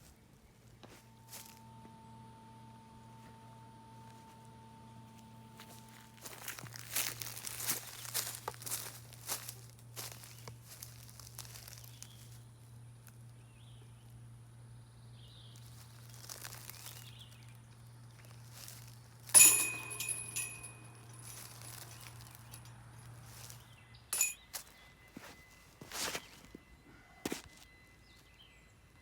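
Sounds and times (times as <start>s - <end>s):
disc clanking on metal basket: 19.3s - 22.7s
small metallic clink: 19.3s - 24.8s
chains jingling: 19.4s - 22.7s, 24.2s - 24.5s.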